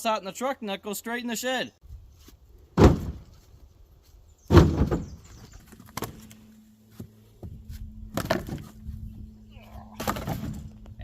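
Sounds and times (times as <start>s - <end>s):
low steady hum: 2.4s - 11.0s
heavy bangs on a truck: 2.8s - 3.2s, 4.5s - 5.2s.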